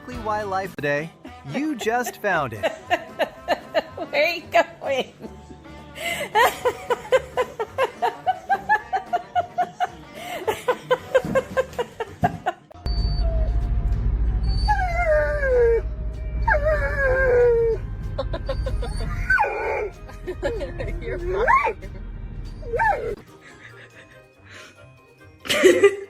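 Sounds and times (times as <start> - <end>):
low rumble: 12.9 - 19.3
dog whining: 14.4 - 19.9, 22.5 - 23.2.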